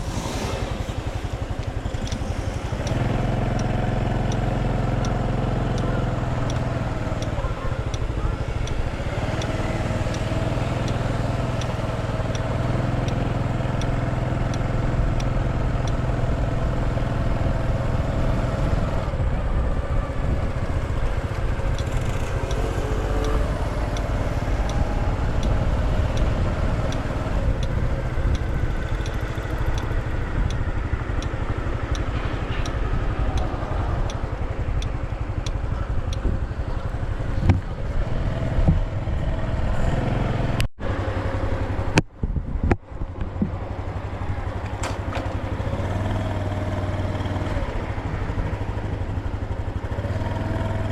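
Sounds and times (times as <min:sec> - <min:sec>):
motorcycle engine running: 0:00.0 - 0:50.9
road and wind noise: 0:00.0 - 0:50.9
faint regular ticking: 0:00.6 - 0:18.5, 0:20.2 - 0:37.6.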